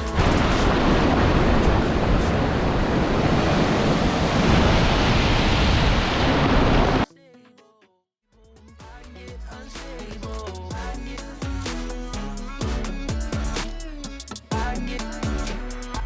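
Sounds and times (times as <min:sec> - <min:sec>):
ocean surf washing on beach: 0:00.0 - 0:07.0
wind on microphone: 0:00.0 - 0:07.0.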